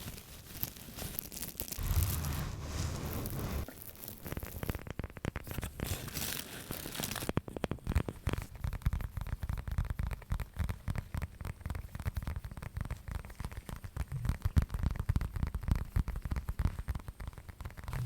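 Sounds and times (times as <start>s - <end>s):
close crinkling and crackling: 0.0s - 10.0s
scratching hiss: 1.8s - 3.7s.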